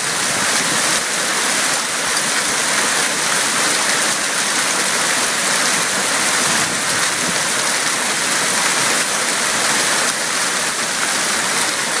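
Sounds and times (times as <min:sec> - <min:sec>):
hail and heavy rain pelting: 0:00.0 - 0:12.0.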